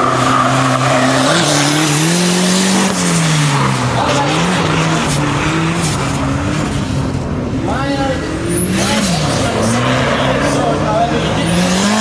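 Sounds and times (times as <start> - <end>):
car engine revving: 0.0 - 12.0
tyres sliding and screeching: 0.0 - 12.0.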